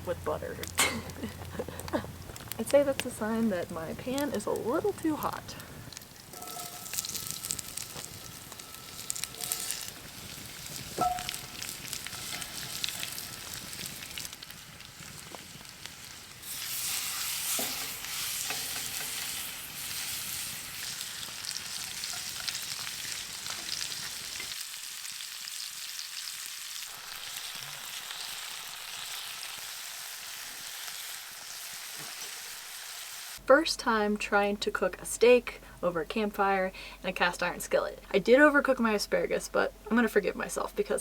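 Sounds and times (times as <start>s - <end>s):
food sizzling in a skillet: 4.1s - 33.4s.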